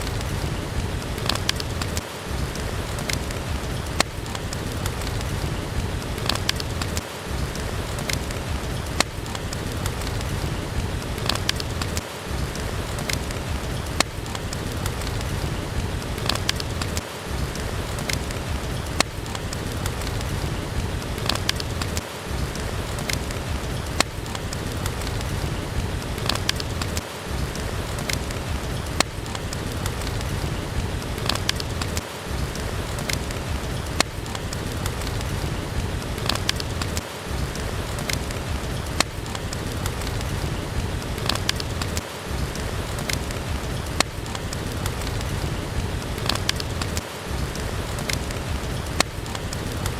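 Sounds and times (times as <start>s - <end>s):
steady rain: 0.0s - 49.9s
wood fire crackling: 0.0s - 49.9s
sharp pops: 26.2s - 30.6s.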